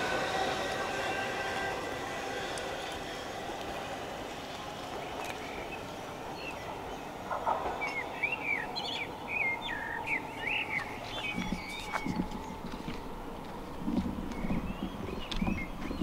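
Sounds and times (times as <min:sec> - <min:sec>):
steady background noise: 0:00.0 - 0:16.0
songbird chirping and warbling: 0:05.0 - 0:12.6.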